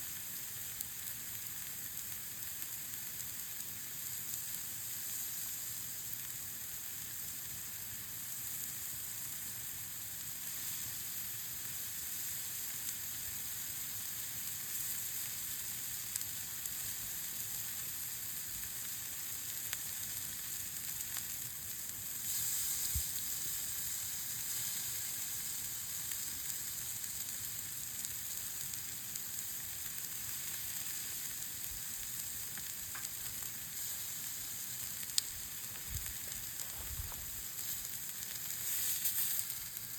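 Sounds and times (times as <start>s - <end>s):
meat sizzling over campfire: 0.0s - 39.9s.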